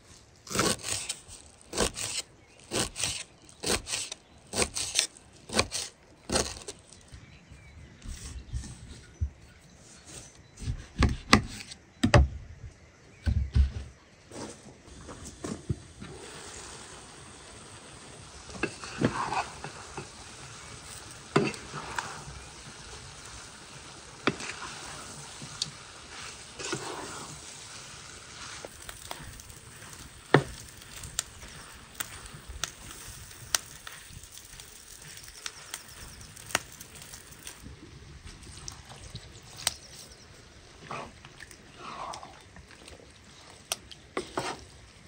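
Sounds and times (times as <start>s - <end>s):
food sizzling in a pan: 15.4s - 37.7s
utensil scraping a pan: 18.5s - 23.1s, 24.2s - 37.6s, 44.2s - 44.7s.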